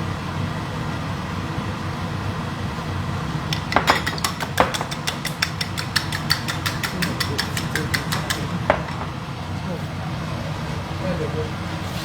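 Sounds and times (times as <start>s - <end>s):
rapid kitchen tapping: 3.5s - 9.4s.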